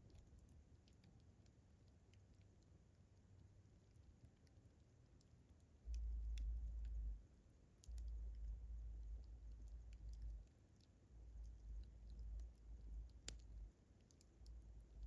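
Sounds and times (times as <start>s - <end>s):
low rumble: 5.9s - 7.2s.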